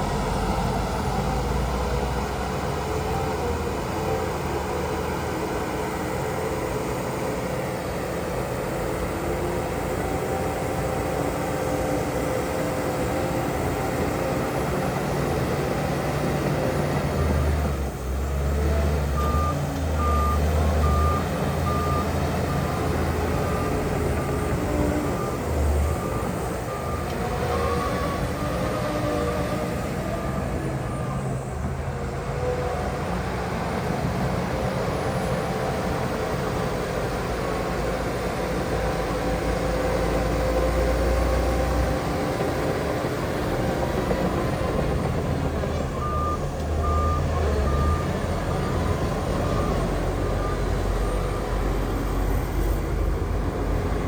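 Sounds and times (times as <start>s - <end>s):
diesel machinery rumbling: 0.0s - 54.0s
reversing alarm beeping: 19.2s - 28.3s, 45.9s - 52.8s.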